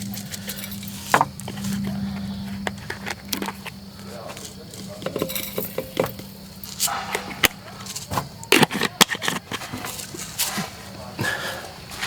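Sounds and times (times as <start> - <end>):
camp cooking gear clinking: 0.0 - 12.0.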